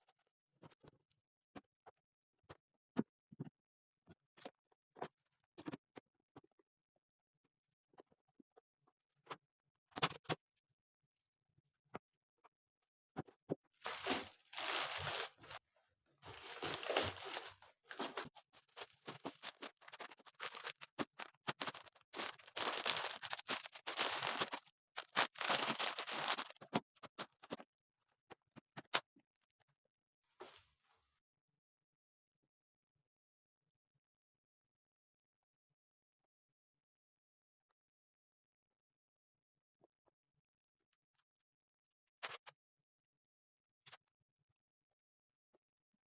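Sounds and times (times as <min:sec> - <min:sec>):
scratchy rustling noise: 0:13.8 - 0:15.6, 0:16.2 - 0:26.5.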